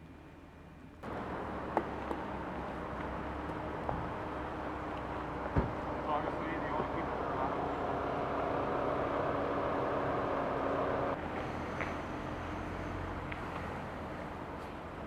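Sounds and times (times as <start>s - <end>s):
vehicle engines idling: 1.0s - 15.0s.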